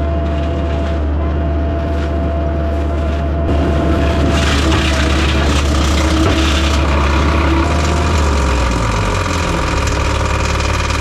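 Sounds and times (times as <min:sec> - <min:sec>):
diesel engine and mulcher drone: 0:00.0 - 0:11.0.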